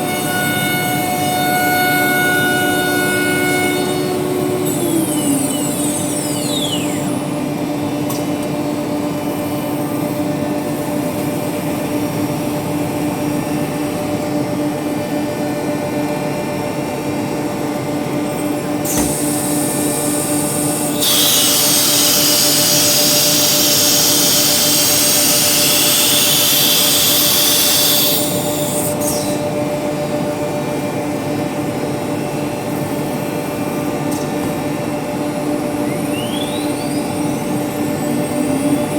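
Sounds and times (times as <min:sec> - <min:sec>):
cnc router humming: 0:00.0 - 0:38.9
falling whine: 0:01.9 - 0:08.9, 0:18.0 - 0:38.9
rising whine: 0:02.0 - 0:09.3, 0:18.0 - 0:38.9
loud high hiss: 0:18.8 - 0:29.6.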